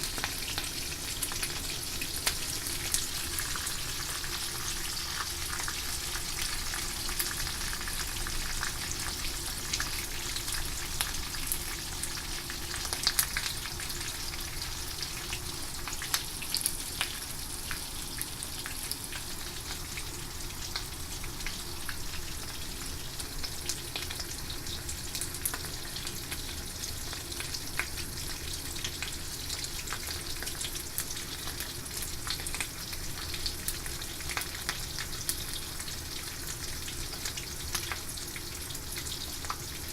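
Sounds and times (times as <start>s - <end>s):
fish sizzling in hot oil: 0.0s - 39.9s.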